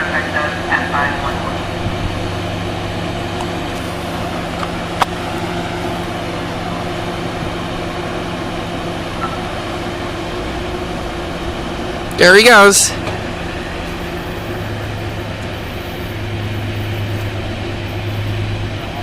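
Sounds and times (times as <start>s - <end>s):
diesel locomotive idling drone: 0.0s - 19.0s.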